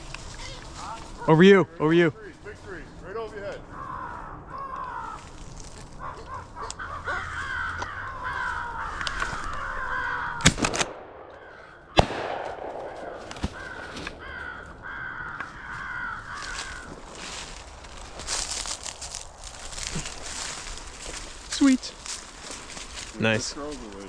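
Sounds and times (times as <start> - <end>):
crows cawing: 2.7 - 24.0
shotgun shots: 10.4 - 14.2.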